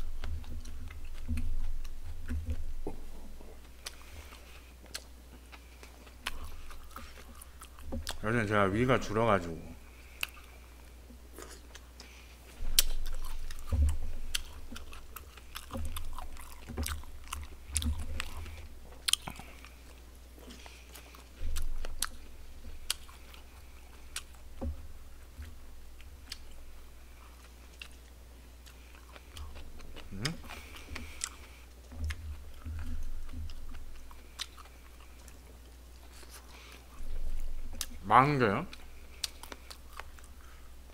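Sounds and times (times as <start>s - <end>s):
man chewing food: 0.0s - 40.9s
wet mouth clicks and smacks: 12.7s - 13.7s.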